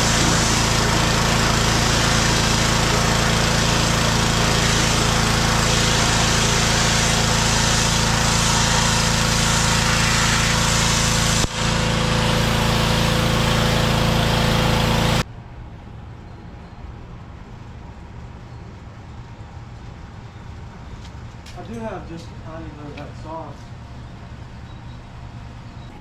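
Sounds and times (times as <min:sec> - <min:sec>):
pressure washer engine running: 0:00.0 - 0:15.2
water spray hiss: 0:00.0 - 0:15.2.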